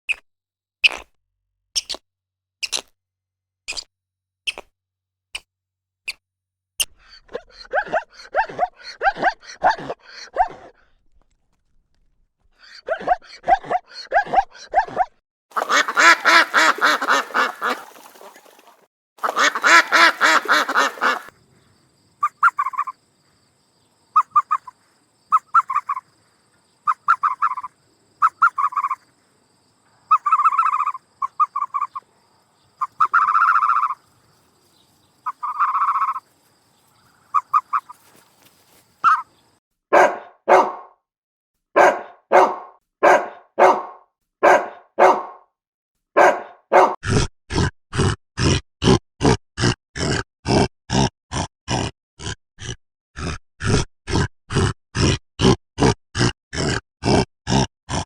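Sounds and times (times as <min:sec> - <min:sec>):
short repeated animal calls: 0:12.6 - 0:21.4, 0:22.2 - 0:23.0, 0:24.1 - 0:29.2, 0:29.8 - 0:39.4
harsh noisy animal calls: 0:12.7 - 0:21.4, 0:22.2 - 0:23.0, 0:24.1 - 0:26.2, 0:26.9 - 0:29.2, 0:32.8 - 0:34.2, 0:35.2 - 0:36.6, 0:37.2 - 0:39.4
pulsing chattering animal calls: 0:19.2 - 0:21.3, 0:22.2 - 0:23.0, 0:24.1 - 0:26.2, 0:26.8 - 0:29.1, 0:30.1 - 0:32.0, 0:32.8 - 0:34.2, 0:35.2 - 0:36.2, 0:37.3 - 0:38.2.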